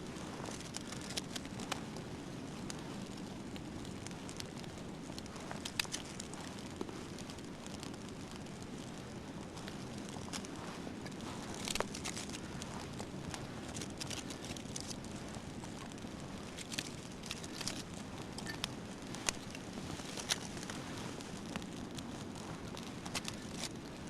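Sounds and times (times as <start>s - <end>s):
campfire burning: 0.0s - 24.0s
fire crackling and popping: 0.0s - 24.0s.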